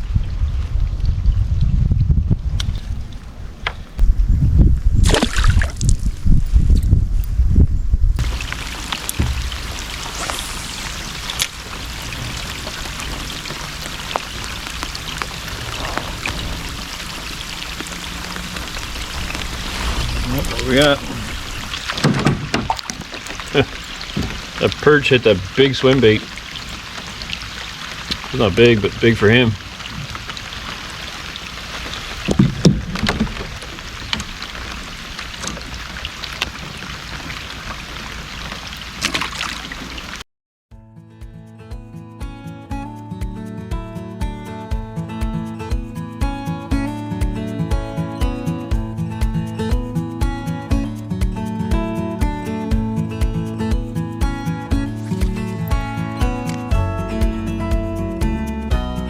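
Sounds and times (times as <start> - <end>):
rain hissing on water: 8.2 - 40.2, 53.2 - 57.7
louder knocks: 9.1 - 10.2, 21.9 - 23.0, 32.3 - 33.6.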